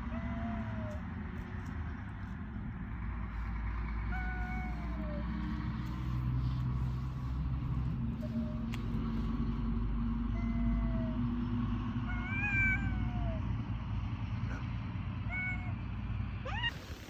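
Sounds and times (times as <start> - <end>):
steady low rumble: 0.0 - 17.0
cat meowing: 4.1 - 5.3, 10.3 - 11.2, 12.0 - 13.4, 15.3 - 15.8, 16.5 - 17.0.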